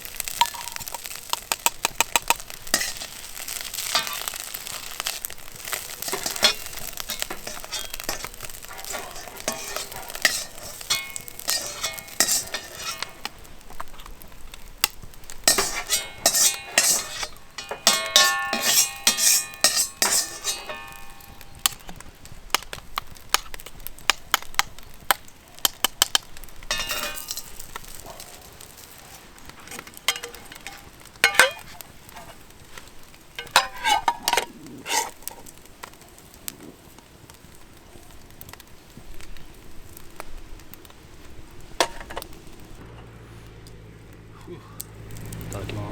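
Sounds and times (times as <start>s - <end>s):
rice sizzling: 0.0s - 45.9s
metal utensil scraping a wok: 0.2s - 14.2s, 14.8s - 22.7s, 25.6s - 36.0s, 41.7s - 42.8s.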